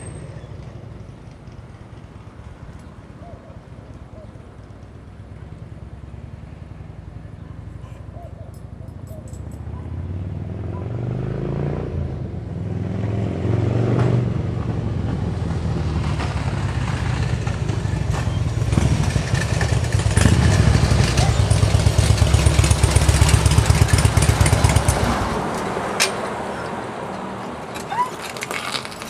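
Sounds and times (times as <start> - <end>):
motorcycle engine running: 14.6 - 25.6.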